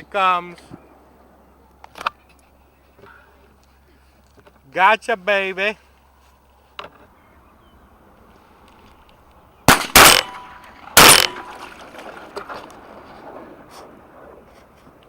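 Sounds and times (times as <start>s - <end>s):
shotgun shots with echo: 9.7s - 11.9s.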